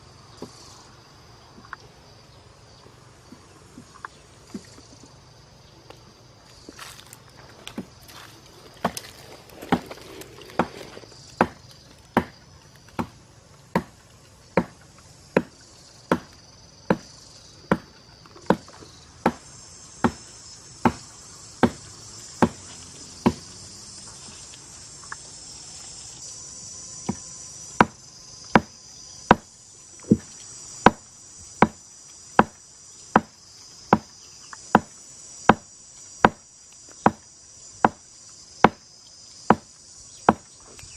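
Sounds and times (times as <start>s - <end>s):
insect chorus: 0.0s - 40.9s
chopping strikes: 8.8s - 12.4s, 13.0s - 14.0s, 15.4s - 17.1s, 17.7s - 19.4s, 20.0s - 23.5s, 27.8s - 28.7s, 29.3s - 29.5s.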